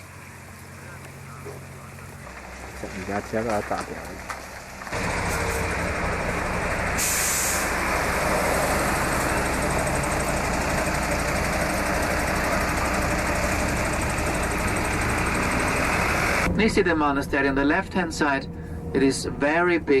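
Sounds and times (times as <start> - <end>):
bus engine and road noise: 0.0 - 20.0
short hiss: 7.0 - 7.7.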